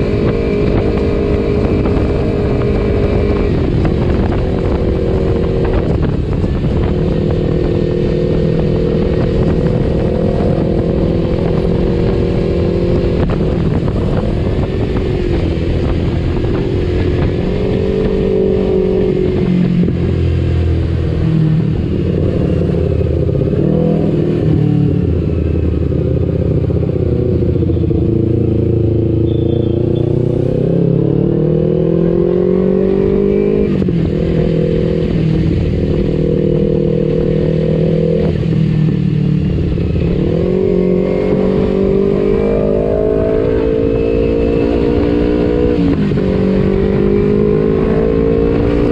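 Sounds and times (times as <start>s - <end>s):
motorcycle engine being ridden: 0.0s - 48.9s.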